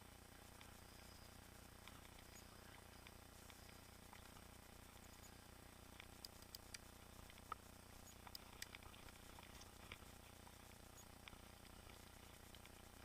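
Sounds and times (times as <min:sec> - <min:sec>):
tiny irregular clicks: 0:01.7 - 0:13.0.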